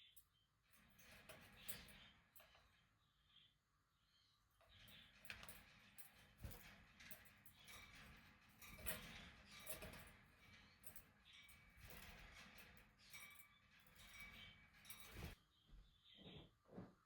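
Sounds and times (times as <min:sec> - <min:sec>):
birds clicking and ticking: 0:04.7 - 0:15.4.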